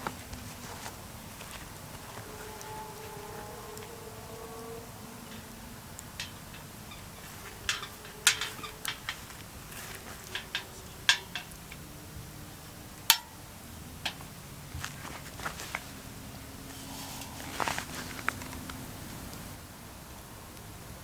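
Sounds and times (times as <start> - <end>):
sharp clicks and knocks: 3.7 - 11.9.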